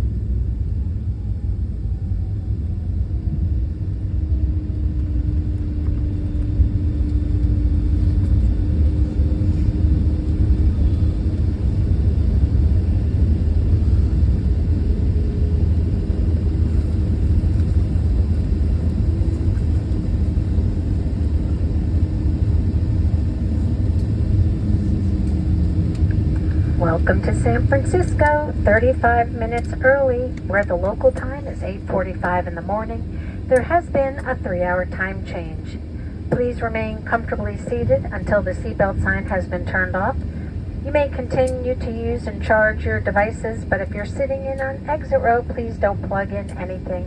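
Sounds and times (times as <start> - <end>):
deep rumble of wheels and airframe: 0.0 - 34.4
faint engine hum: 0.0 - 47.0.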